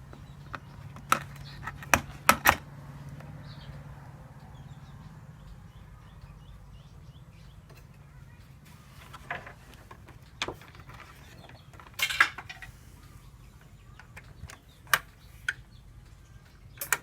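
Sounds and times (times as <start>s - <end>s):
low electrical hum: 0.0s - 17.0s
faint bird chirps: 3.2s - 17.0s
sharp clicks: 13.0s - 17.0s.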